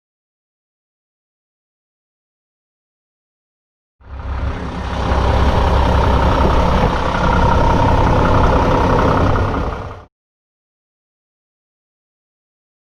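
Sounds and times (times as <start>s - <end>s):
diesel truck engine rumbling: 4.0s - 10.1s.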